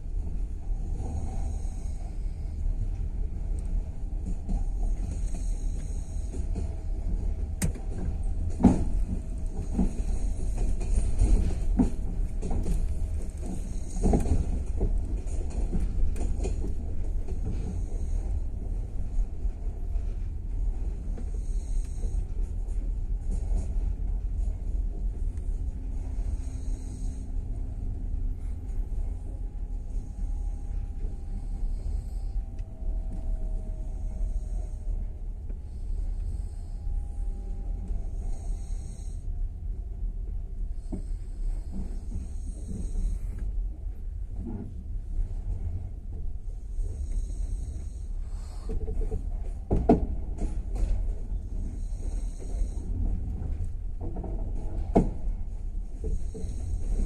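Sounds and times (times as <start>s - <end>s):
train running gear rumble: 0.0s - 57.0s
faint steady tone: 16.4s - 57.0s.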